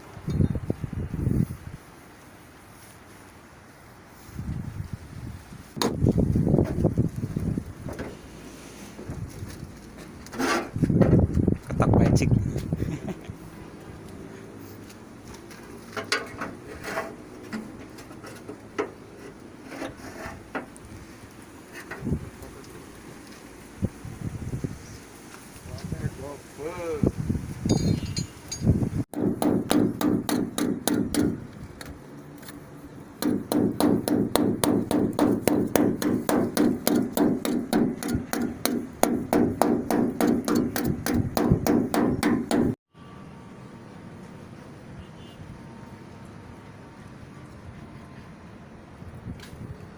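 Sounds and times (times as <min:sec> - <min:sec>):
hammer striking metal panel: 0:29.1 - 0:31.4, 0:33.2 - 0:42.8.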